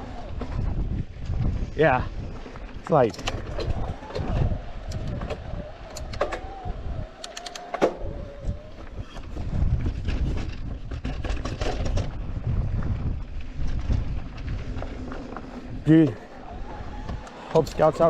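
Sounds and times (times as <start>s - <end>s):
wind buffeting microphone: 0.0s - 18.0s
steady whine: 2.8s - 9.2s.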